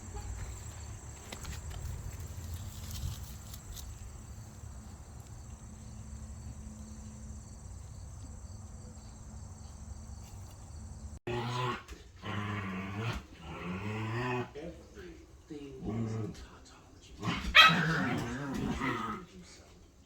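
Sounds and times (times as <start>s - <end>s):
crickets chirring: 0.0s - 11.2s.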